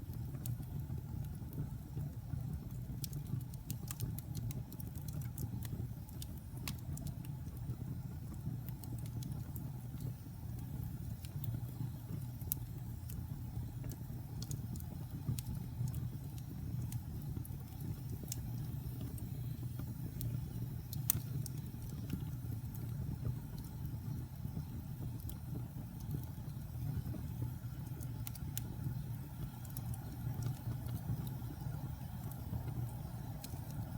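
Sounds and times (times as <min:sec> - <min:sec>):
logs crackling and popping: 0:00.0 - 0:33.9
low rumble of flames: 0:00.0 - 0:33.9.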